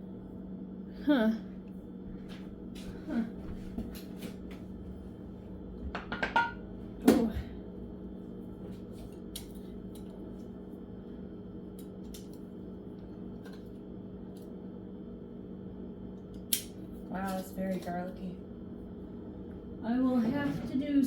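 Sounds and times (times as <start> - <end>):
steady low hum: 0.0 - 21.0
kitchenware clinking: 6.0 - 6.6.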